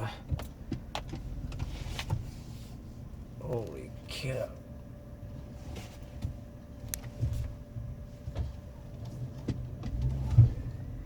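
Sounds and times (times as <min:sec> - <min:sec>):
pickup engine running slowly: 0:00.0 - 0:11.0.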